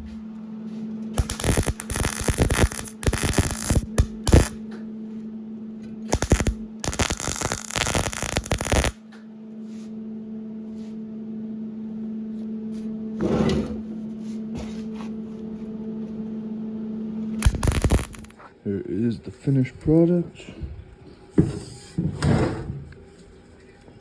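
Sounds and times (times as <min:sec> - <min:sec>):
electrical hum: 0:00.0 - 0:21.3
welding arc crackling: 0:01.2 - 0:04.6, 0:06.1 - 0:09.0, 0:17.4 - 0:18.4.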